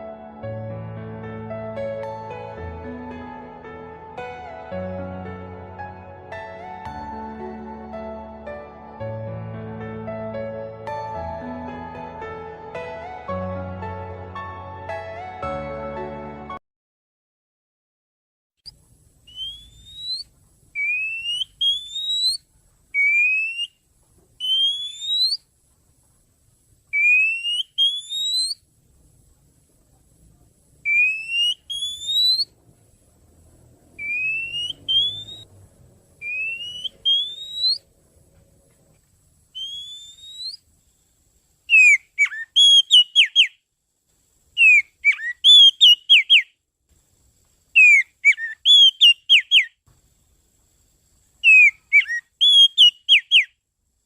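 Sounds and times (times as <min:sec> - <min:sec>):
bird whistling rising notes: 0:19.3 - 0:22.4, 0:23.0 - 0:23.8, 0:24.4 - 0:25.4, 0:26.9 - 0:28.6, 0:30.9 - 0:32.6, 0:33.9 - 0:35.6, 0:36.2 - 0:37.9, 0:39.5 - 0:40.7, 0:41.7 - 0:43.6, 0:44.6 - 0:46.5, 0:47.8 - 0:49.7, 0:51.4 - 0:53.5.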